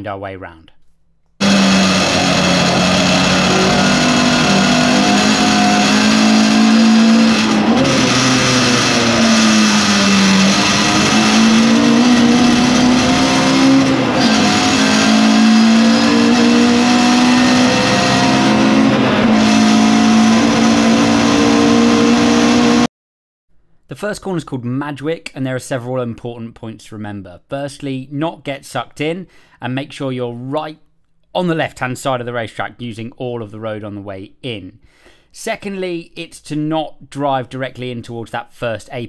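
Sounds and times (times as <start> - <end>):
racing engine accelerating: 1.4 - 22.9.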